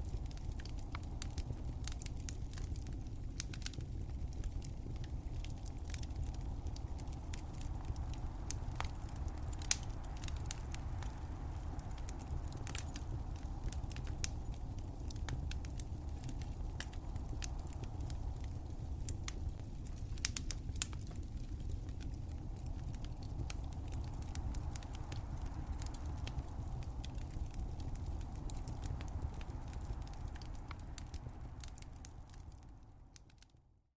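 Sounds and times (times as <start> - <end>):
wood fire crackling: 0.0 - 33.6.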